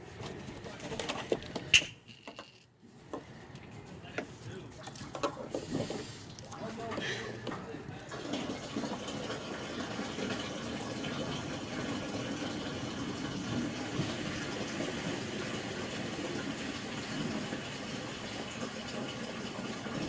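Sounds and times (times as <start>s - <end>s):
liquid gurgling from a jug: 8.1s - 20.0s.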